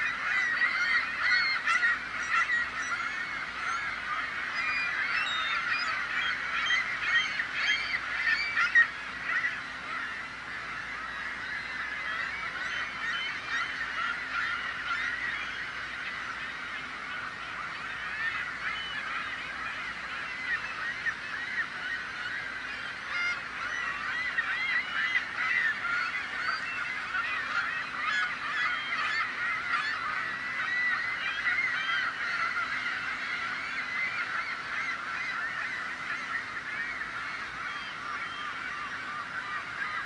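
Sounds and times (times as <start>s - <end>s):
seagulls squawking: 0.0s - 40.0s.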